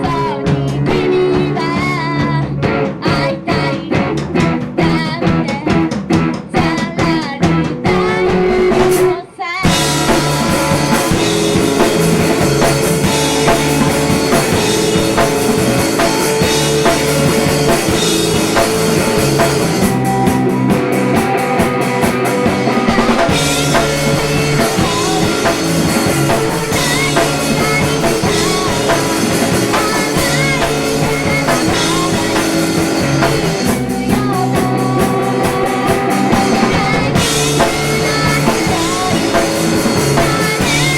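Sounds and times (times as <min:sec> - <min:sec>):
woman singing: 0:00.0 - 0:18.1, 0:22.5 - 0:40.9
band with drums and guitar: 0:00.0 - 0:40.9.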